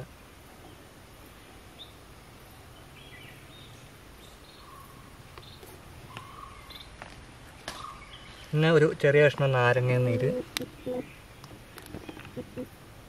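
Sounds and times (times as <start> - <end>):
bird chirps: 2.8 - 7.0, 7.7 - 8.6, 10.0 - 12.8.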